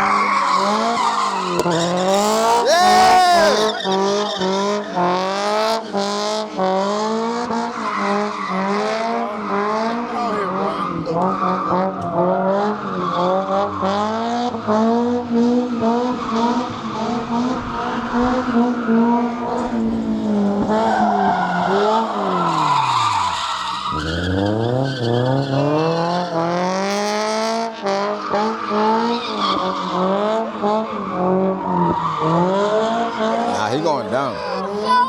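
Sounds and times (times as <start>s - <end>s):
car engine revving: 0.0s - 35.0s
tyres squealing: 0.3s - 4.0s.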